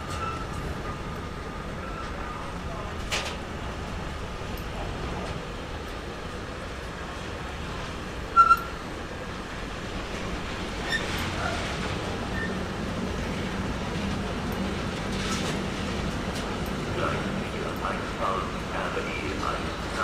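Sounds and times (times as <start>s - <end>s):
train rumbling through station: 0.0s - 20.0s
high-pitched wheel squeal: 8.4s - 8.8s, 12.3s - 12.6s.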